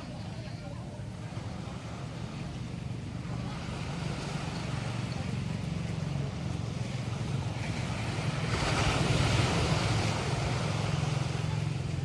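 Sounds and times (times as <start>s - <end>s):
surf breaking on beach: 3.2s - 12.0s.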